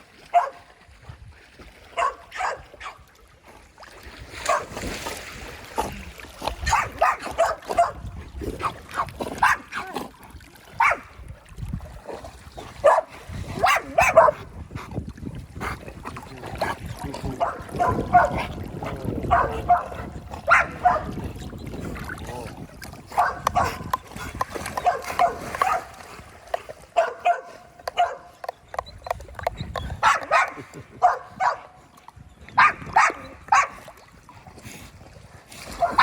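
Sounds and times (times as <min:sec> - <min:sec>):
water splashing in a pool: 0:00.0 - 0:36.0
dogs yipping whining and barking: 0:24.8 - 0:25.9, 0:27.0 - 0:31.7, 0:32.6 - 0:33.8.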